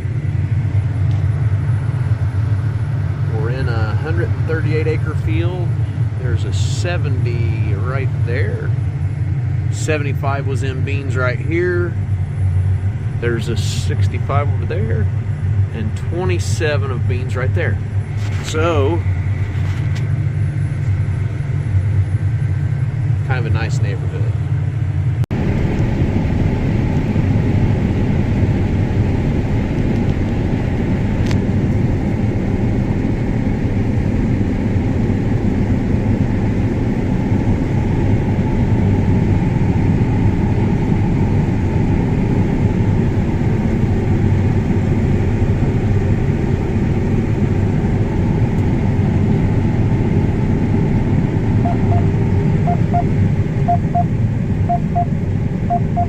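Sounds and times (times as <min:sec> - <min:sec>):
combine harvester engine running: 0:00.0 - 0:56.0
electronic double beeps: 0:51.6 - 0:53.1, 0:53.7 - 0:54.1, 0:54.7 - 0:55.1, 0:55.7 - 0:56.0.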